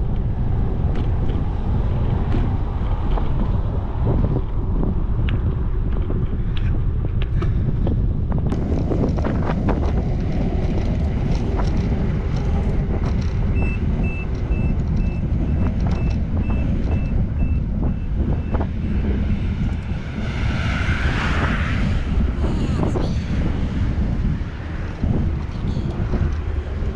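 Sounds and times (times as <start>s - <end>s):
traffic rumble: 0.0s - 26.9s
wind buffeting microphone: 0.0s - 26.9s
reversing alarm beeping: 13.5s - 18.7s.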